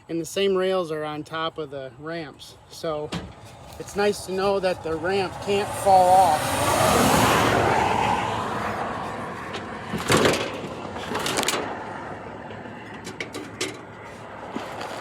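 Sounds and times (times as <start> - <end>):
metal clanks and scrapes: 9.0 - 11.8, 12.5 - 15.0.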